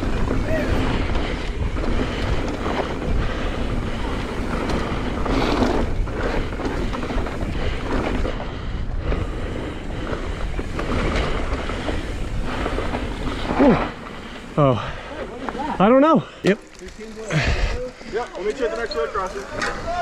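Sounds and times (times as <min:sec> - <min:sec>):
wind rushing over microphone: 0:00.0 - 0:15.5
bike rattling: 0:00.0 - 0:20.0
bike tyre roar: 0:00.0 - 0:20.0.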